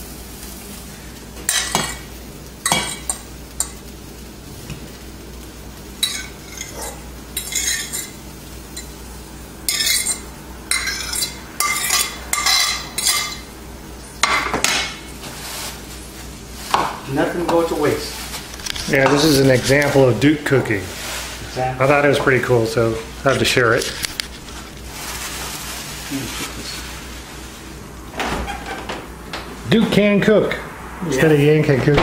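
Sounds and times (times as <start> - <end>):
steady low hum: 0.0 - 32.0
utensil scraping a pan: 6.0 - 8.2, 9.7 - 13.5.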